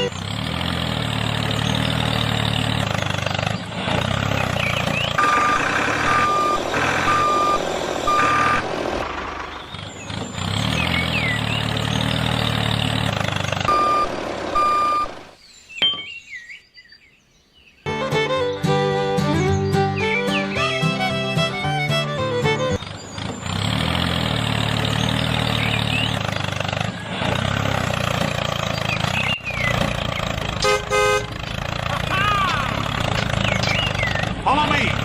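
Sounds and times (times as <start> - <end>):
truck engine running: 0.0 - 15.4, 18.2 - 35.0
reversing alarm beeping: 5.2 - 8.8, 13.6 - 15.2.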